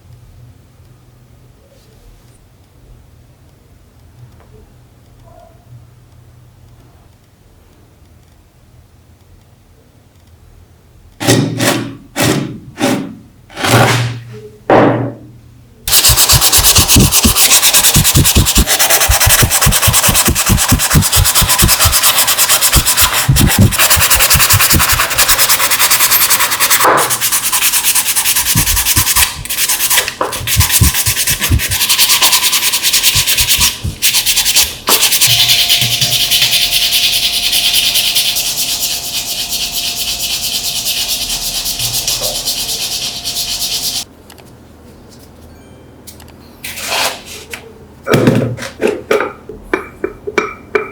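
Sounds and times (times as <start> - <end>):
sanding back and forth: 15.9 - 44.1.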